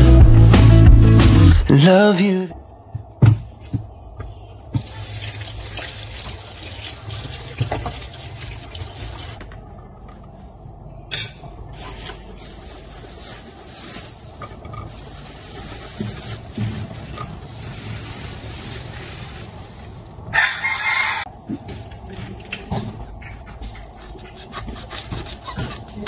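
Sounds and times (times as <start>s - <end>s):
tap water running into sink: 4.8s - 9.4s.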